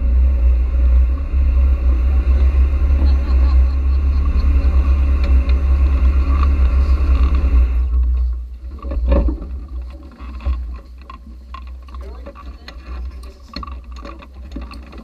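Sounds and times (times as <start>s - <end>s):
sports car engine idling: 0.0s - 8.7s.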